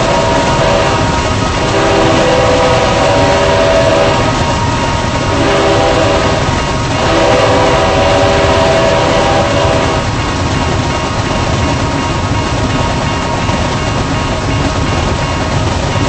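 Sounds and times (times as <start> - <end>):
locomotive air horn: 0.0 - 10.1
train rumble: 0.0 - 16.0.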